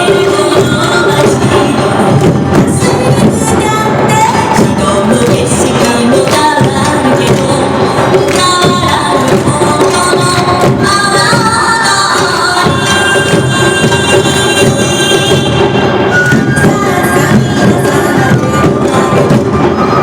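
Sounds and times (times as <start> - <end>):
drums: 0.0 - 20.0
bamboo flute: 12.6 - 20.0.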